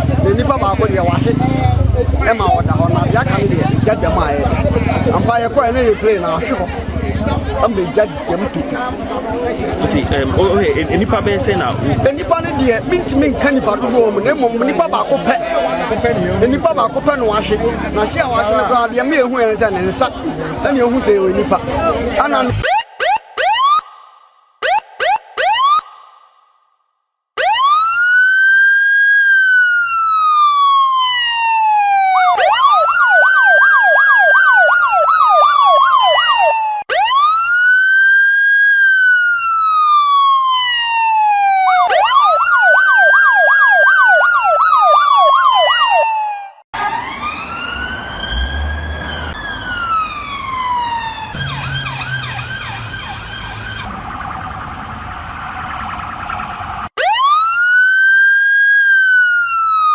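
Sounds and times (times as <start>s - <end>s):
emergency siren wailing and yelping: 22.5s - 26.3s, 27.4s - 59.9s.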